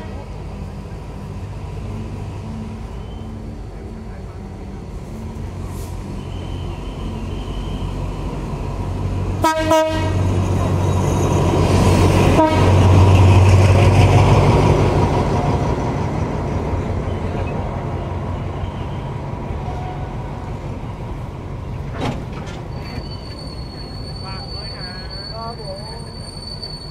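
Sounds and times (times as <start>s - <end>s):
diesel locomotive engine: 0.0s - 26.9s
train coaches rolling on track: 0.0s - 26.9s
high-pitched wheel squeal: 2.9s - 3.5s, 6.0s - 8.2s, 10.2s - 11.8s, 22.7s - 26.9s
train horn toot: 9.4s - 10.4s, 12.2s - 12.9s.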